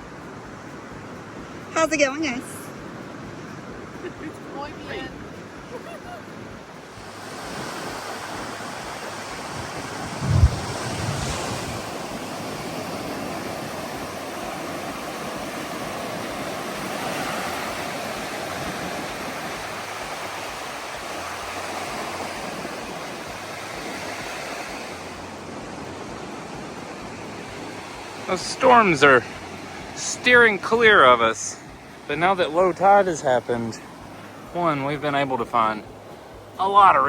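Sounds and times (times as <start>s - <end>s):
ocean surf: 0.0s - 37.0s
wind on microphone: 4.9s - 28.3s
low thump: 10.1s - 11.9s.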